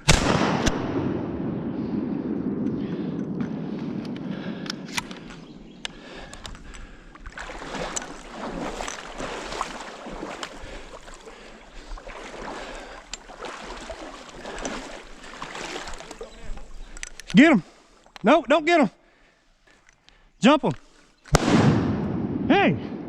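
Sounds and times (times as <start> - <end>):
wading through shallow water: 1.9 - 18.2
sharp clicks: 4.0 - 6.8.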